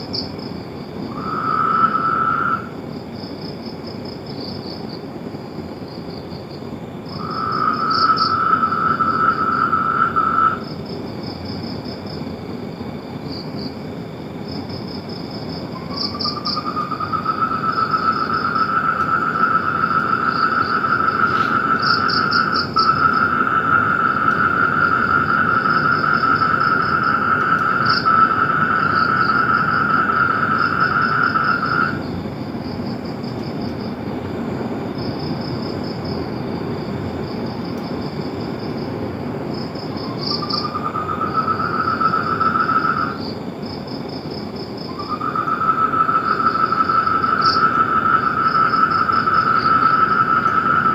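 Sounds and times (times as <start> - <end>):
insects chirping: 0.0 - 50.9.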